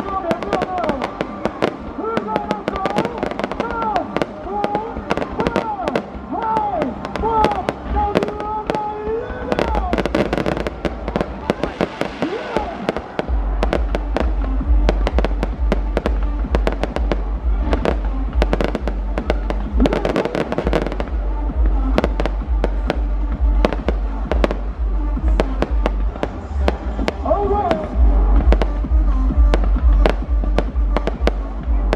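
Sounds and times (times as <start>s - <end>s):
fireworks bangs and crackles: 0.0s - 31.9s
deep rumble: 6.9s - 31.9s
fireworks whistling: 9.3s - 14.2s.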